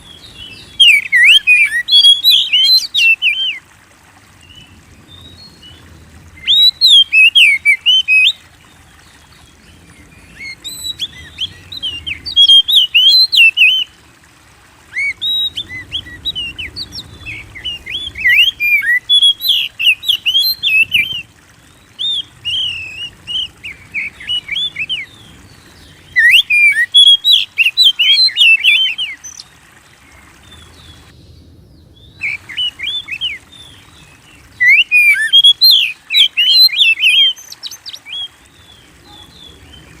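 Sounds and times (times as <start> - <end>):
bird singing whistled phrases: 0.6 - 3.6, 6.4 - 8.4, 10.4 - 13.9, 14.9 - 21.2, 21.9 - 25.2, 26.0 - 29.4, 32.1 - 33.8, 34.6 - 38.3.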